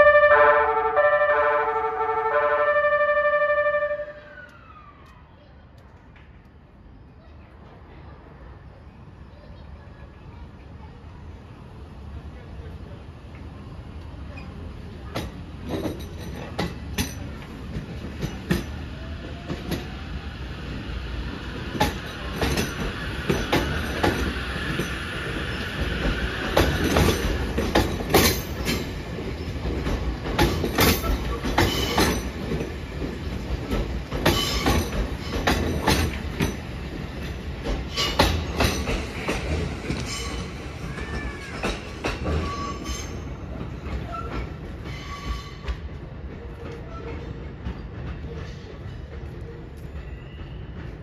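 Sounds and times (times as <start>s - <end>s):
train rumble: 0.0s - 51.0s
train wheels clacking over rail joints: 15.0s - 19.9s, 21.4s - 51.0s.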